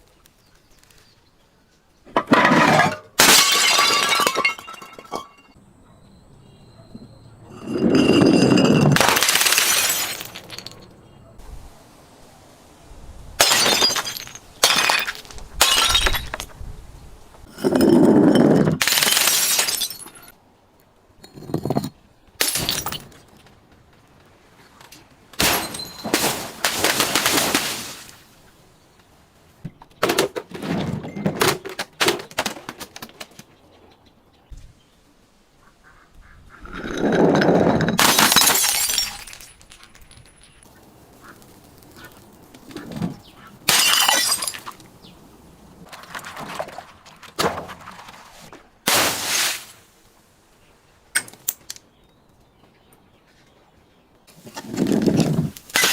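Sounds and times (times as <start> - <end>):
something crunching and shattering: 2.2 - 5.6, 7.6 - 10.9, 13.4 - 16.5, 18.6 - 20.3, 25.4 - 28.2, 37.6 - 44.9, 48.9 - 49.8, 54.5 - 55.9
loud crash of smashing: 25.4 - 28.2, 48.9 - 49.8.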